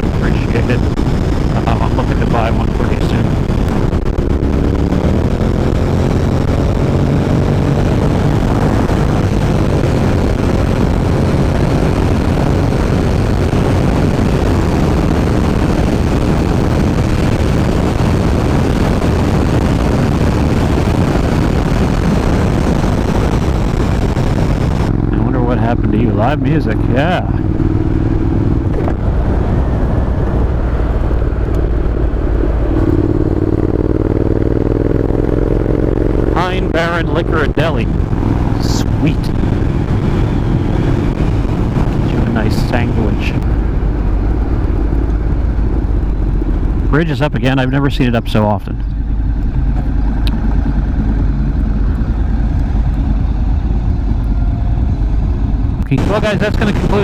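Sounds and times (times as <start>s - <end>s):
motorcycle engine rumble: 0.0s - 57.0s.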